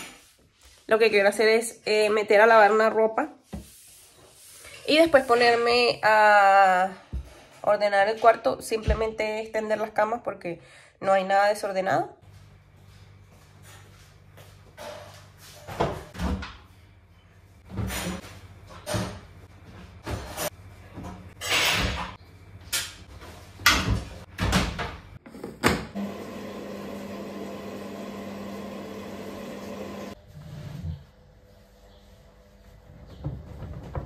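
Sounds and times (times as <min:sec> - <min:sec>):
washing machine hum: 0:17.6 - 0:31.8
laundry knocks and thumps: 0:33.2 - 0:34.0.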